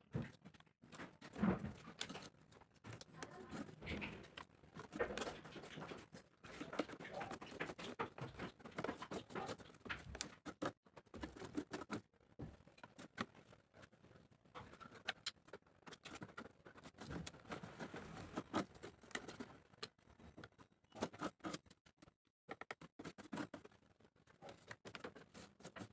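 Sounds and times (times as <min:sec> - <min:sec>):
small clicks and knocks: 0:00.1 - 0:23.8
cardboard scratching and rustling: 0:01.0 - 0:12.1, 0:14.6 - 0:19.8.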